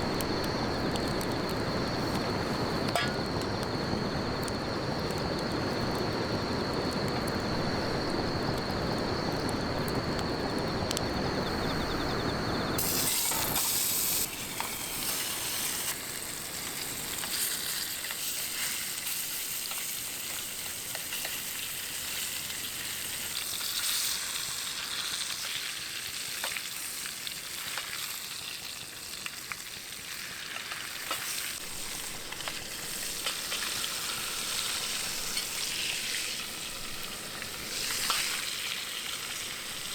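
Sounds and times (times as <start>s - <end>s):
food sizzling in a pan: 12.8s - 39.9s.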